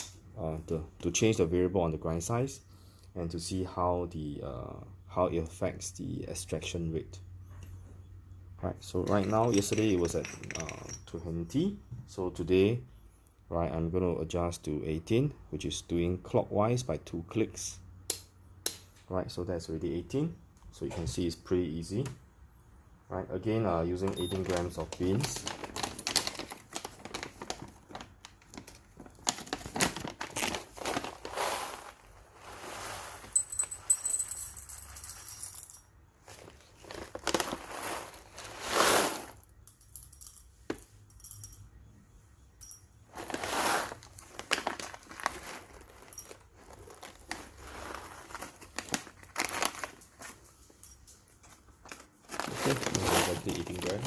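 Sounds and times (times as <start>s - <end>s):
coffee beans rattling: 9.0s - 11.2s, 24.2s - 40.5s, 43.1s - 50.4s, 52.3s - 54.0s.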